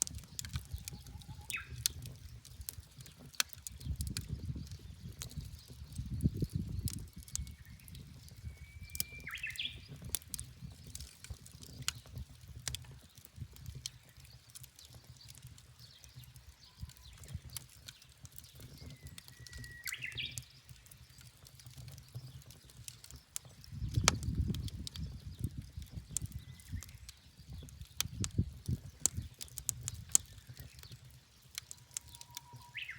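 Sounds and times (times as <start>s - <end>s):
wood fire crackling and popping: 0.0s - 32.9s
bird whistling call: 8.5s - 9.8s, 19.3s - 20.4s, 32.2s - 32.9s.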